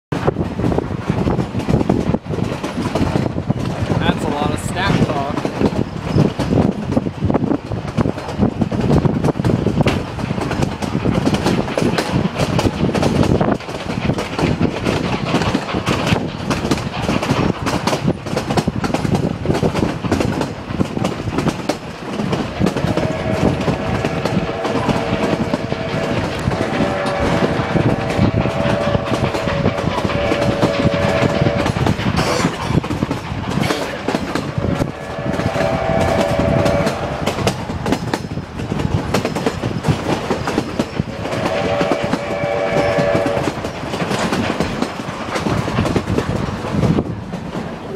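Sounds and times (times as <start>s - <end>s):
train wheels clattering on rails: 0.1s - 47.9s
steam locomotive whistle: 22.7s - 32.3s, 34.4s - 37.3s, 41.2s - 43.7s.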